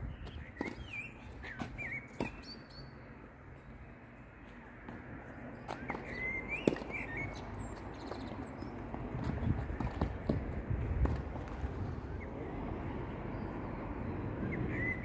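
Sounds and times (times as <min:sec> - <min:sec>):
birds chirping: 0:00.0 - 0:10.5, 0:13.0 - 0:15.0
tennis balls bounced and struck: 0:00.1 - 0:02.7, 0:04.8 - 0:11.6.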